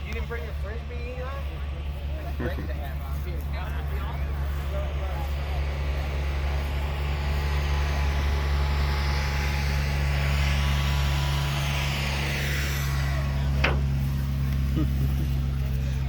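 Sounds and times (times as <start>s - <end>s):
aircraft passing overhead: 0.0s - 16.0s
low steady hum: 0.0s - 16.0s.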